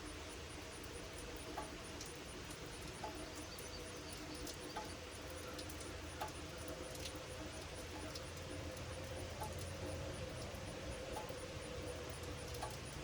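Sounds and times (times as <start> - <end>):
rain falling: 0.0 - 13.0
sharp drip ticks: 0.0 - 13.0.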